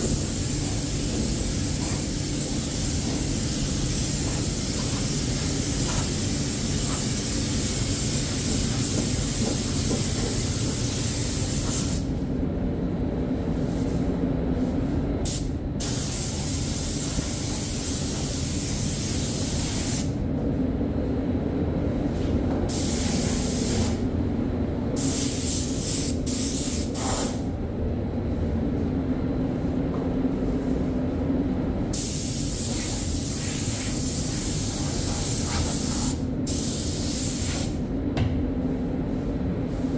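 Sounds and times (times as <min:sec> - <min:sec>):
spray gun hissing: 0:00.0 - 0:12.1, 0:15.3 - 0:20.0, 0:22.7 - 0:24.0, 0:25.0 - 0:27.4, 0:32.0 - 0:37.7
steady low hum: 0:00.0 - 0:39.9.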